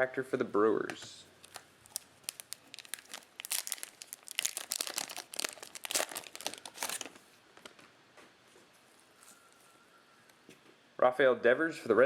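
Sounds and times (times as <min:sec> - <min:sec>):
cellophane wrapper crinkling: 0:01.4 - 0:07.8.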